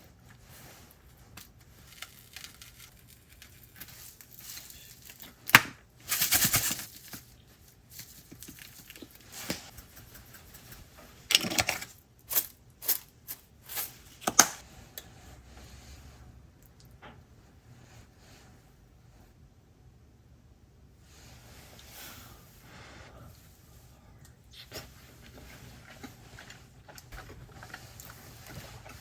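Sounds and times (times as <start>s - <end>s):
rustling tearing sound: 0.3s - 10.7s.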